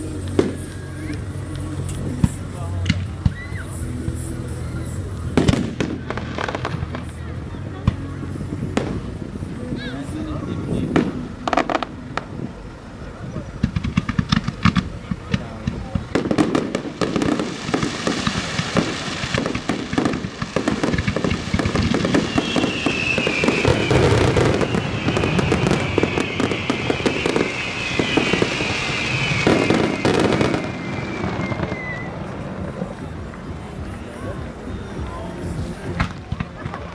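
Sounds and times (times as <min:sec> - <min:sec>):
fireworks bangs and crackling: 0:00.0 - 0:36.9
high falling whistle: 0:22.1 - 0:32.5.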